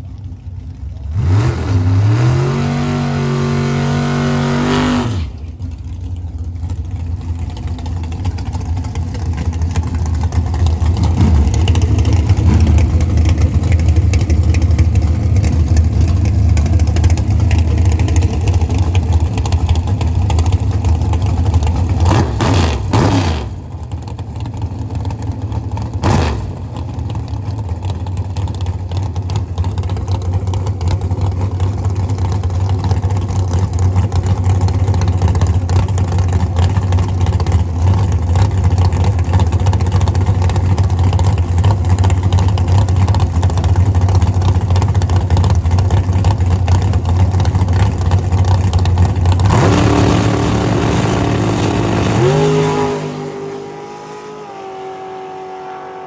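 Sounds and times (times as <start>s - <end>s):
drag racing car engines revving: 0.0s - 56.0s.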